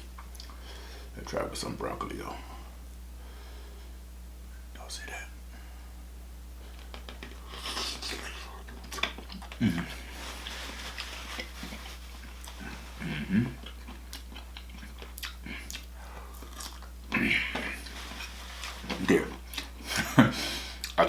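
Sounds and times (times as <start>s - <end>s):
close chewing and mouth sounds: 0.0s - 0.6s, 6.6s - 21.0s.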